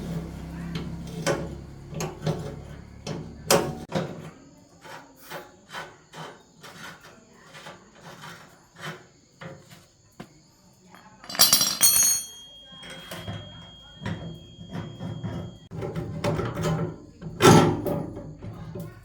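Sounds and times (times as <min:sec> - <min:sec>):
low hum: 0:00.0 - 0:03.9
scraping: 0:00.0 - 0:03.9.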